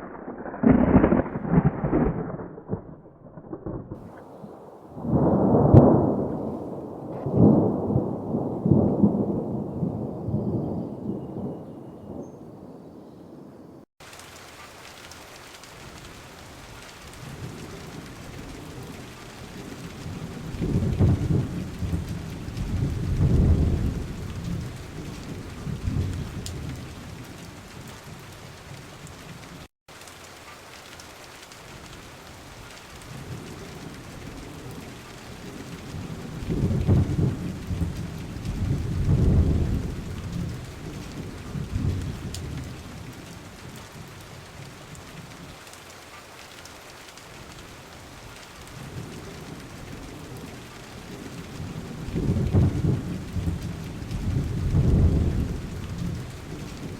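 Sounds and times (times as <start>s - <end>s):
steady rain: 0.0s - 10.7s, 14.0s - 56.9s
rolls of thunder: 0.0s - 12.5s, 17.2s - 27.2s, 33.1s - 43.1s, 48.8s - 56.9s.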